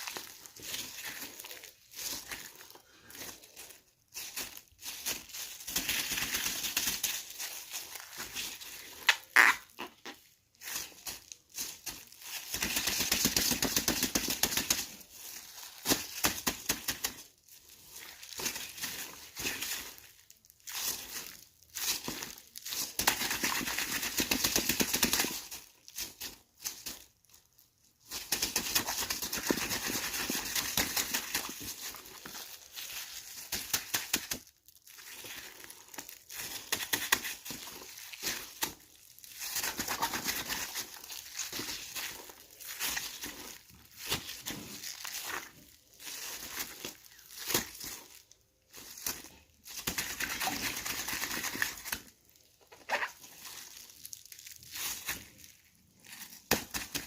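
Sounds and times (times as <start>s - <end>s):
plastic bag crinkling: 0.0s - 57.0s.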